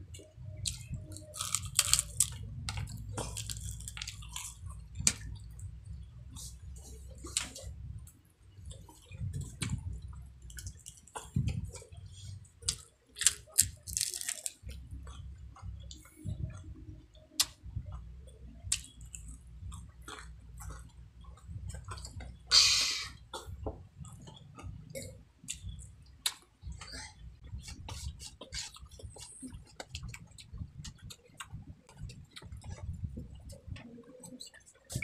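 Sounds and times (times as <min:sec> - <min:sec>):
mouth clicks and crackles: 0:00.1 - 0:05.7, 0:08.6 - 0:16.7, 0:17.3 - 0:17.6, 0:18.4 - 0:35.0
chewing crispy chicken skin: 0:00.7 - 0:05.3, 0:12.7 - 0:14.7
loud crunch: 0:12.7 - 0:14.6.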